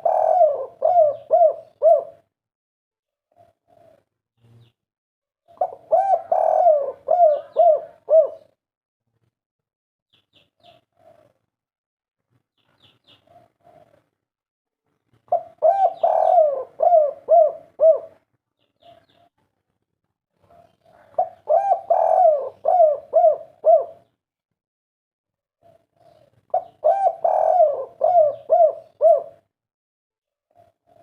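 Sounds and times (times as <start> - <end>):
dove cooing: 0.0 - 2.3, 3.3 - 4.1, 5.5 - 8.6, 10.6 - 11.4, 13.2 - 14.1, 15.3 - 18.2, 20.4 - 24.1, 25.6 - 29.5, 30.5 - 31.0.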